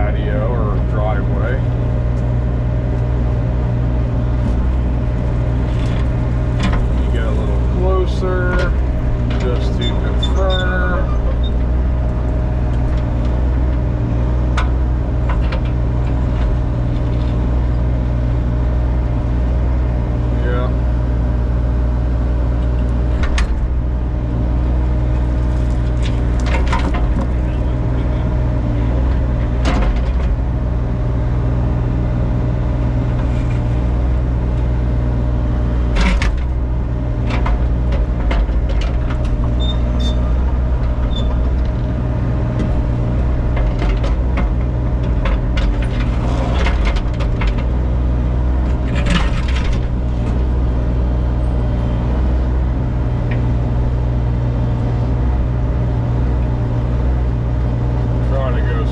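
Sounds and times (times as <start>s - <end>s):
excavator diesel engine running: 0.0s - 58.9s
bucket clanking and scraping: 42.6s - 47.7s, 48.7s - 50.5s.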